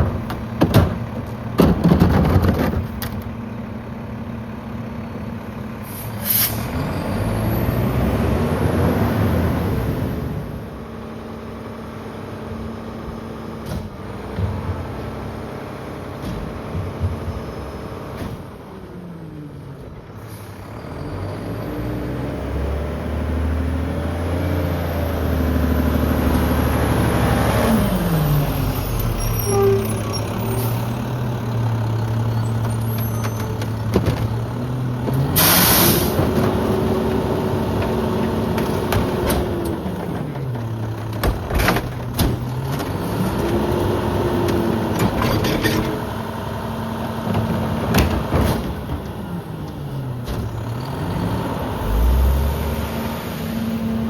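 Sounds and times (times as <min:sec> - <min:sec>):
diesel engine revving: 0:00.0 - 0:54.0
hydraulic packer compacting: 0:28.0 - 0:52.4.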